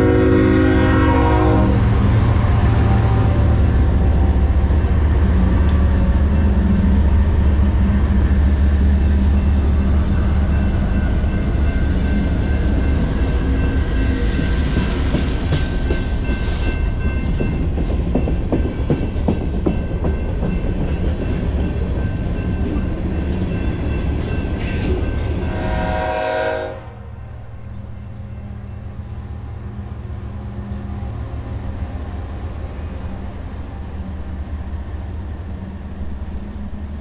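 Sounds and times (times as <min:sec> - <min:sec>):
train horn: 0:00.0 - 0:04.7, 0:25.3 - 0:27.5
freight train rumbling: 0:00.0 - 0:37.0.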